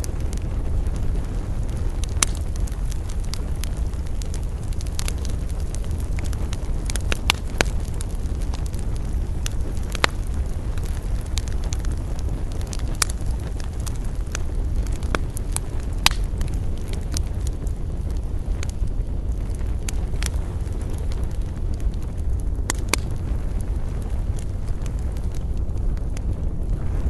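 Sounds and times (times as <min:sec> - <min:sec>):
burning wood crackling and popping: 0:00.0 - 0:27.0
campfire flames rumbling: 0:00.0 - 0:27.0.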